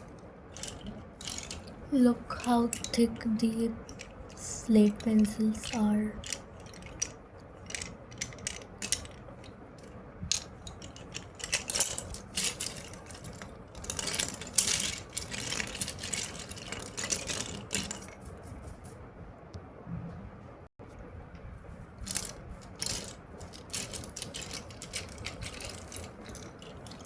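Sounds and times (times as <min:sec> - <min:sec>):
slate pencils clicking together: 0:00.0 - 0:01.8, 0:03.8 - 0:18.2, 0:22.0 - 0:27.0.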